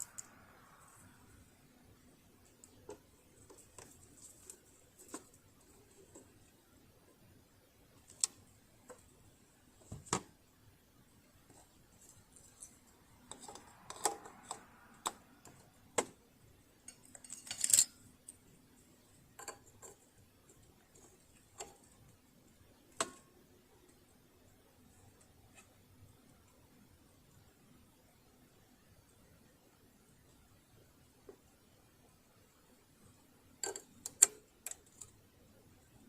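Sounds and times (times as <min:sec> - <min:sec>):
small parts rattling: 0:16.8 - 0:18.4.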